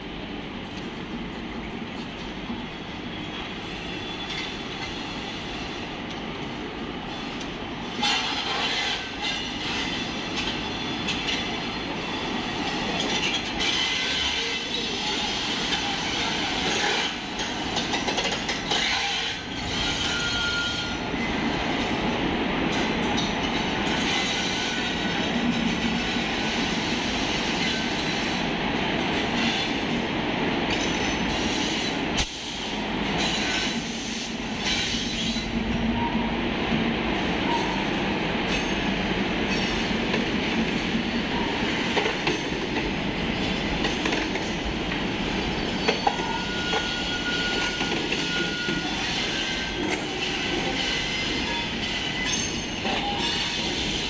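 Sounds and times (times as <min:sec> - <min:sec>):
train wheels rumbling and clicking: 0:00.0 - 0:54.0
wheel squeal: 0:18.8 - 0:21.0, 0:45.4 - 0:49.7.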